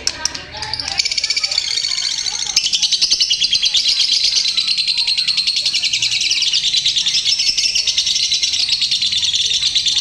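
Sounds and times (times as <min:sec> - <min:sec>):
bird chattering trill: 0:00.0 - 0:10.0.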